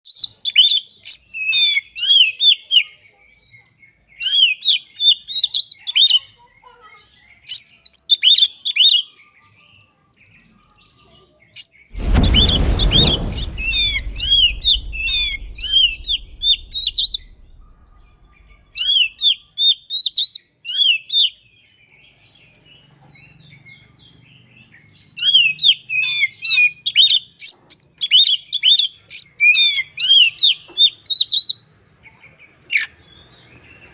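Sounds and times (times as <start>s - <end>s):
dull thump: 12.0s - 19.0s.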